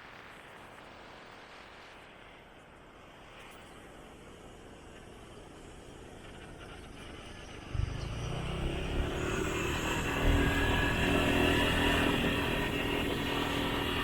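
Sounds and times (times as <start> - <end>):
motorcycle engine running: 7.7 - 14.0.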